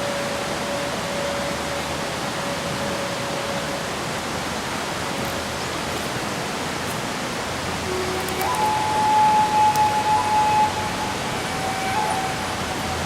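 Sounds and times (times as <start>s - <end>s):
faint steady tone: 0.0s - 5.7s.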